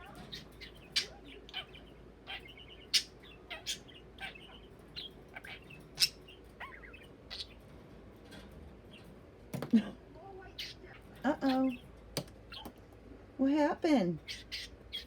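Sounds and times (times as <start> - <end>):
budgerigar chirping: 0.0 - 7.6, 10.5 - 11.8, 12.5 - 12.7, 14.2 - 15.0.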